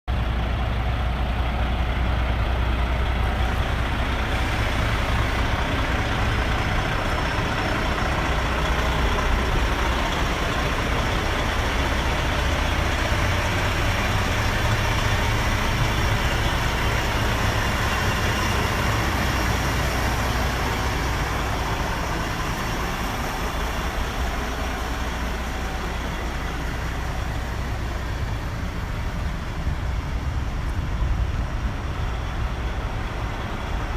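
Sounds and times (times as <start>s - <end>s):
diesel truck engine running: 0.1s - 33.9s.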